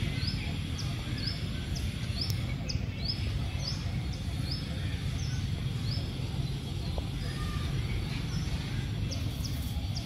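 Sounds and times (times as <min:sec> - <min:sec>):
small bird chirping: 0:00.0 - 0:10.0.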